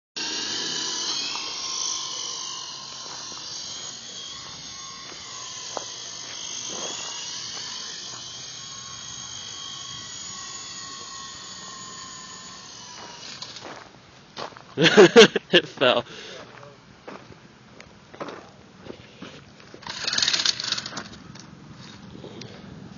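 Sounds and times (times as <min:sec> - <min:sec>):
toy helicopter motor whirring: 0:00.2 - 0:14.0, 0:19.7 - 0:22.5.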